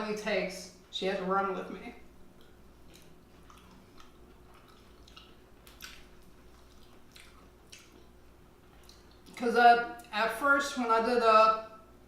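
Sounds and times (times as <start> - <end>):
low steady hum: 0.0 - 12.0
wet chewing: 2.3 - 9.4
soft mouth smacks: 2.4 - 8.1, 8.7 - 9.4.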